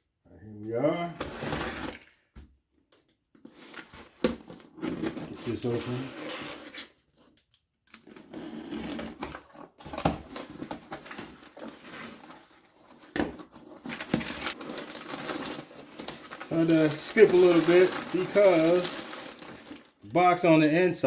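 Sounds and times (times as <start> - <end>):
cardboard box rustling: 8.1 - 20.0.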